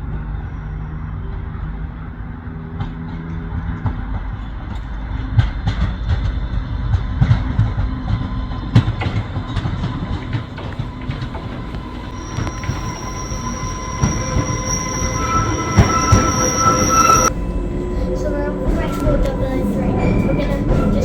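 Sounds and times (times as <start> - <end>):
train rumble: 0.0 - 21.0.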